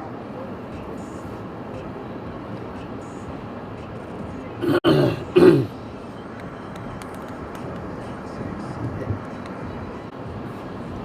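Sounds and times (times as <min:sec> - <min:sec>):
man clearing his throat: 0:04.6 - 0:05.7.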